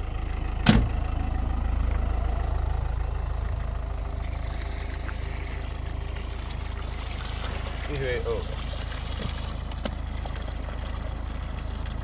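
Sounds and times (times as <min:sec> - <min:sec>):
vehicle engine rumbling: 0:00.0 - 0:12.0
sharp thump: 0:00.6 - 0:01.0.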